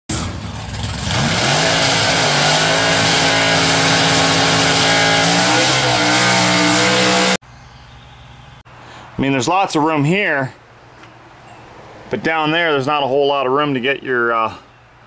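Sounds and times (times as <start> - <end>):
engine revving: 0.1 - 7.4.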